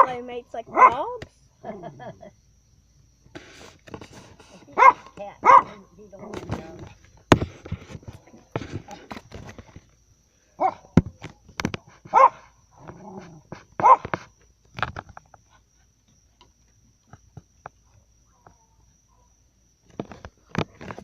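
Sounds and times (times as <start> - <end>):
dog barking and yipping: 0.0 - 1.2, 4.6 - 6.9, 10.6 - 11.0, 11.8 - 14.3.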